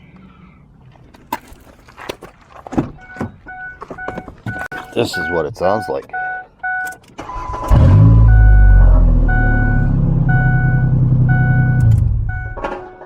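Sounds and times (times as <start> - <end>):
vehicle warning chime beeping: 3.0 - 13.0
engine exhaust drone: 7.3 - 12.8.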